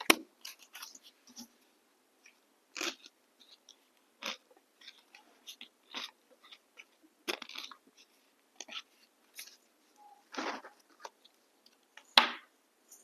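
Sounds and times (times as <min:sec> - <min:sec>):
chewing crunchy biscuit: 0:02.3 - 0:11.9.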